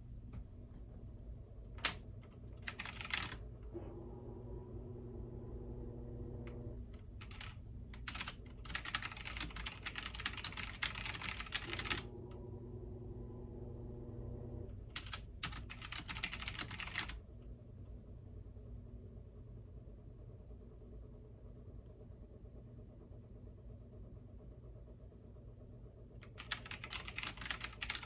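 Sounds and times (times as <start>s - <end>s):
washing machine hum: 0.0s - 28.0s
computer keyboard typing: 1.8s - 3.4s, 7.2s - 12.1s, 15.0s - 17.2s, 26.2s - 28.0s.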